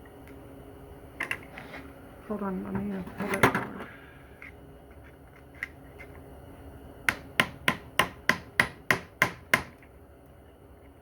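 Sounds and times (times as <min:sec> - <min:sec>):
hammer tapping on metal: 0:07.1 - 0:09.8.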